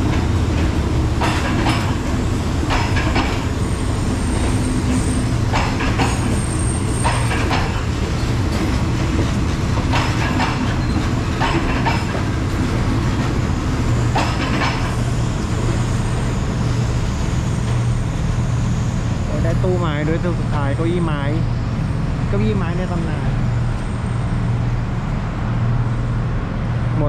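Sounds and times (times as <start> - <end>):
wheels clacking over rail joints: 0.0 - 18.4
train wheels rumbling on rails: 0.0 - 27.0.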